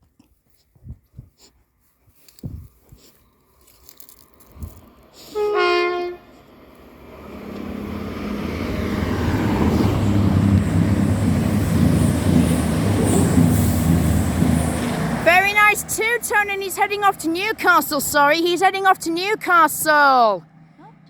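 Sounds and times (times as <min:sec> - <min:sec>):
train running noise: 0:04.1 - 0:21.0
two-tone train horn: 0:05.3 - 0:06.4.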